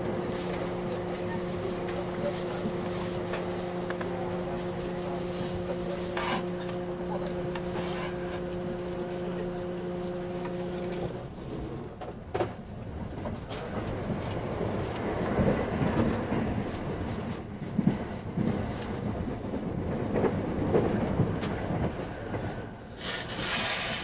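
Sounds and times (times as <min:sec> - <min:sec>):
even hum: 0:00.0 - 0:11.8
wheels rumbling on rail: 0:00.0 - 0:24.0.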